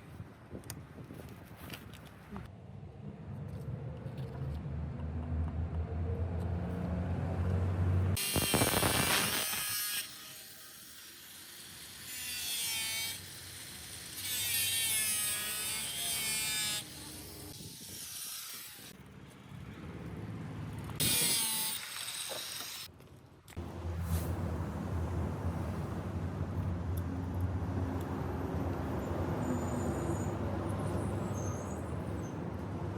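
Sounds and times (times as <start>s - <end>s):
power tools on metal: 8.2s - 19.0s, 21.0s - 22.9s.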